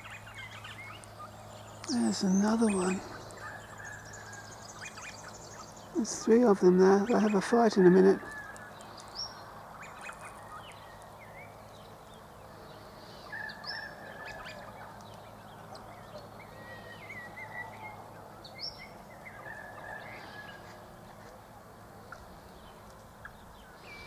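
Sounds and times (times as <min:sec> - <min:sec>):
birds chirping and whistling: 0:00.0 - 0:07.6, 0:08.3 - 0:20.7
low steady hum: 0:00.0 - 0:24.0.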